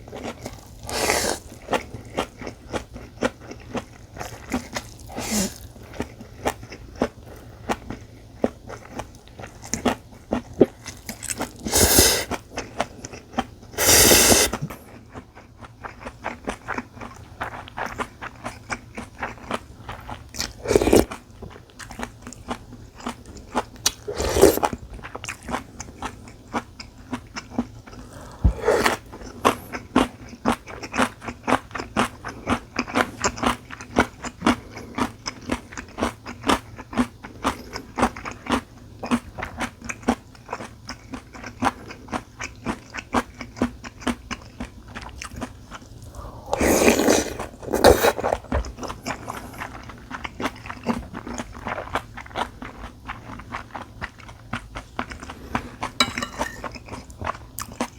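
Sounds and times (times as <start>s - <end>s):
person chewing and biting: 0.2s - 15.2s, 15.9s - 21.2s, 21.8s - 34.0s, 46.5s - 57.0s.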